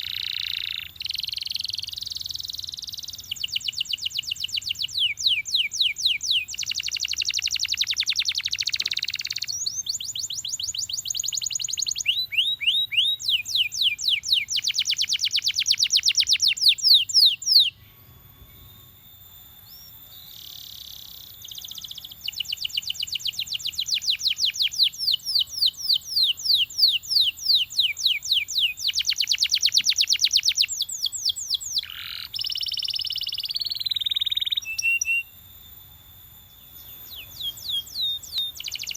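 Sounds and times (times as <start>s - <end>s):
canary singing in fast trills: 0.0s - 19.0s, 19.6s - 35.3s, 36.6s - 38.9s.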